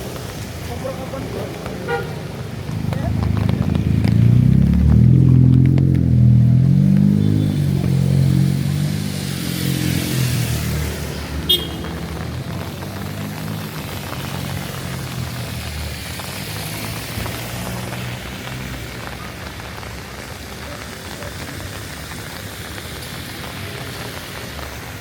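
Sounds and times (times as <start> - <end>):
vehicle engine passing: 0.3 - 19.7.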